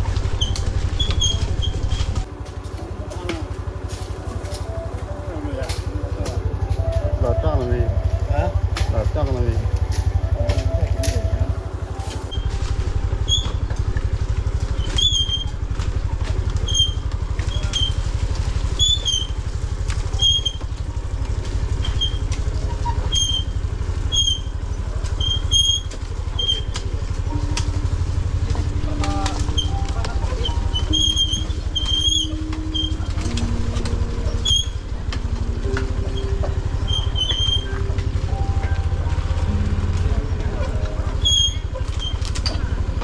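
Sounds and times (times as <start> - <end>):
small engine running: 0.0 - 43.0.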